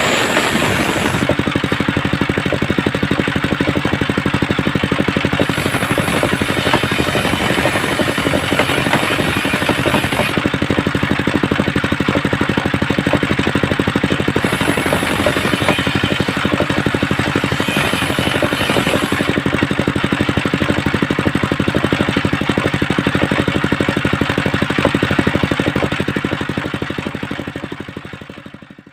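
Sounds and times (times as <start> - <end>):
circular saw motor droning: 0.0 - 11.6, 13.1 - 20.3.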